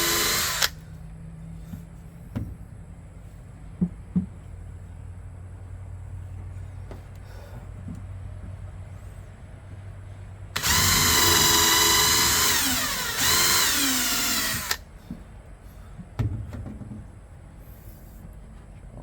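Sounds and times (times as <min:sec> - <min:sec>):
power drill boring into wood: 0:00.0 - 0:00.8, 0:10.6 - 0:14.8.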